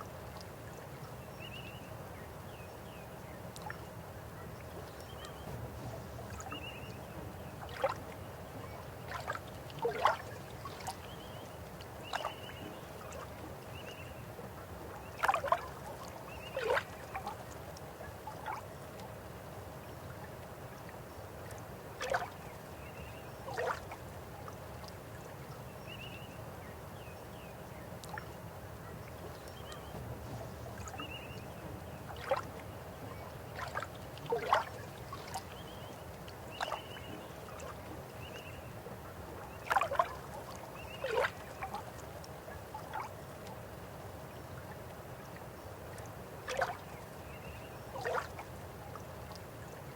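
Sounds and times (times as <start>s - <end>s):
river water flowing: 0.0s - 49.9s
water gurgles and splashes: 7.5s - 13.7s, 14.8s - 19.0s, 22.0s - 22.9s, 23.5s - 24.1s, 30.2s - 43.6s, 44.3s - 49.9s.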